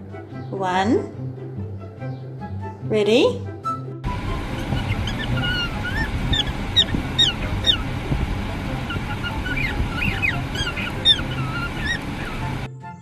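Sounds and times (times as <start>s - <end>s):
steady low hum: 4.0s - 12.7s
parrots calling shrilly: 4.1s - 12.7s.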